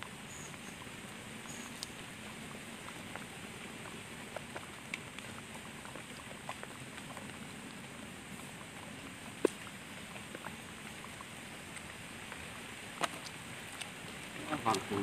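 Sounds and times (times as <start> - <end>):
rain falling: 0.0 - 15.0
water drips: 0.0 - 15.0.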